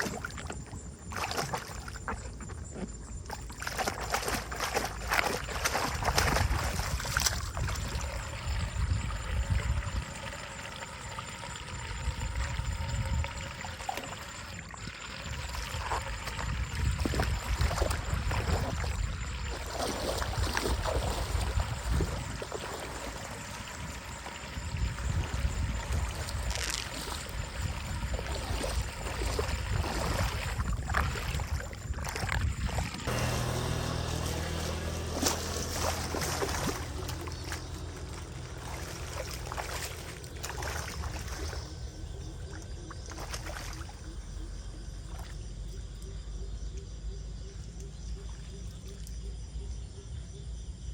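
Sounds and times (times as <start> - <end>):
water trickling through drain: 0.0 - 44.1.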